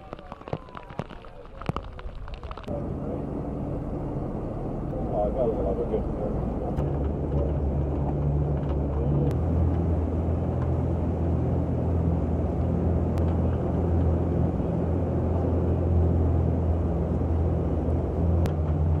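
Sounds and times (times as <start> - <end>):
faint clicks: 0.0 - 2.7
low engine rumble: 0.0 - 19.0.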